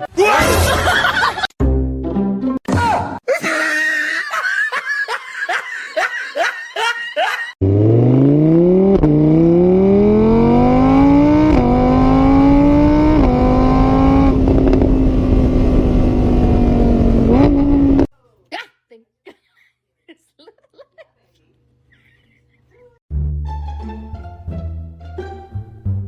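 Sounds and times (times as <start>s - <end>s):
car engine accelerating hard: 7.6s - 18.1s.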